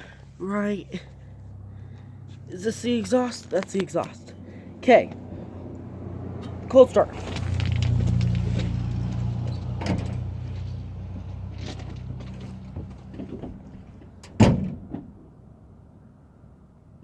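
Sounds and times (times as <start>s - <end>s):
pickup engine running: 0.0s - 15.2s
sharp thump: 14.3s - 15.1s.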